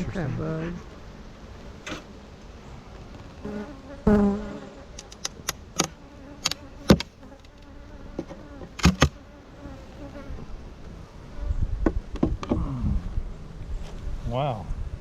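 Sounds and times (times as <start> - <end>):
honeybees buzzing: 0.0 - 13.9
sharp knocks: 8.2 - 9.2.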